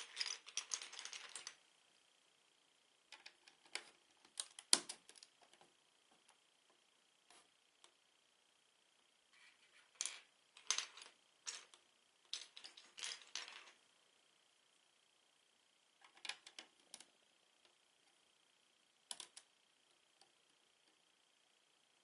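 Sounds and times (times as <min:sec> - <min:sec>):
plastic bricks clattering: 0:00.0 - 0:01.6.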